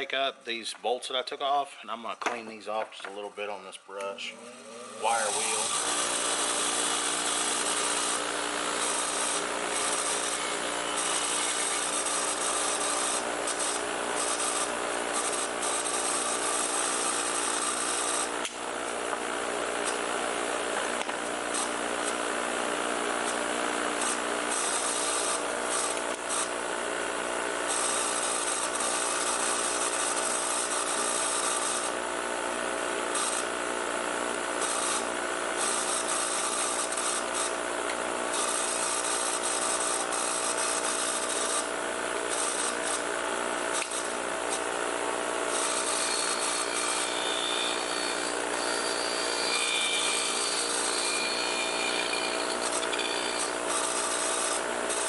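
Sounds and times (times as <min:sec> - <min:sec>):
grinder motor whine: 0:04.2 - 0:55.0
wire wheel scratching metal: 0:45.5 - 0:54.4.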